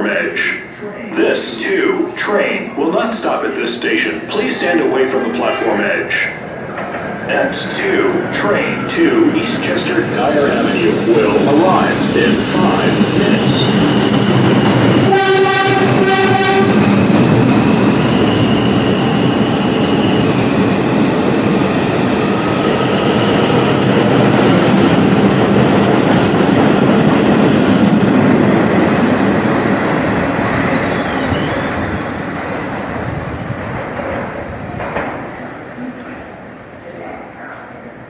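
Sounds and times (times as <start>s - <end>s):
subway train wheel and rail noise: 0.0s - 38.0s
train horn blast: 15.1s - 16.8s.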